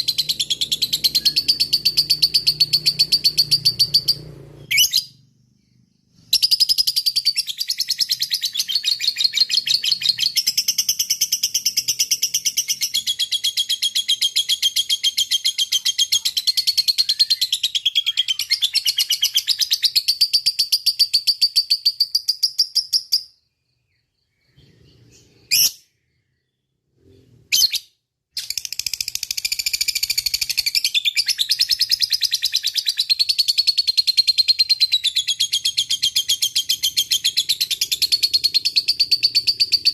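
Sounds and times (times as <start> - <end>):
bird chattering trill: 0.0 - 5.2.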